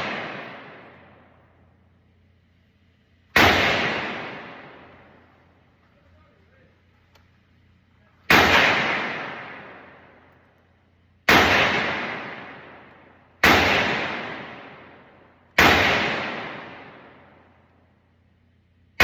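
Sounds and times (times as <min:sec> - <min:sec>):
rifle shots: 0:00.0 - 0:01.5, 0:03.3 - 0:05.6, 0:08.2 - 0:10.5, 0:11.3 - 0:17.6.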